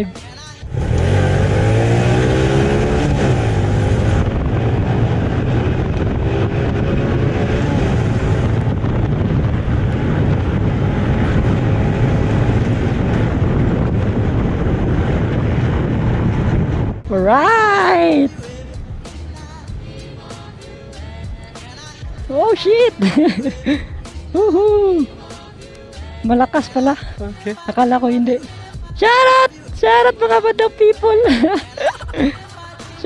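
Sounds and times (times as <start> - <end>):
motorcycle engine accelerating: 0.6 - 17.0
wind rushing over microphone: 0.6 - 19.0.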